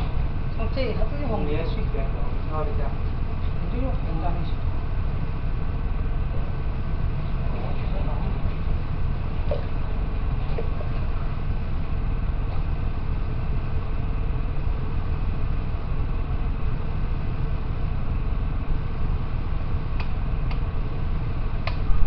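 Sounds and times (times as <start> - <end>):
low machine rumbling hum: 0.0 - 22.0.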